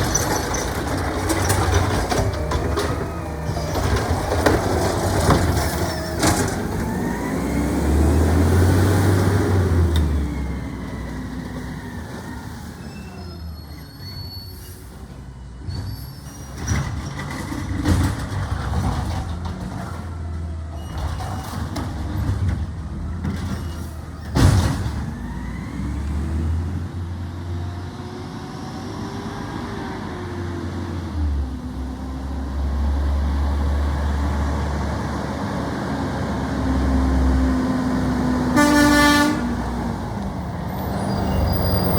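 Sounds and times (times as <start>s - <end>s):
garbage truck engine revving: 0.0s - 13.5s.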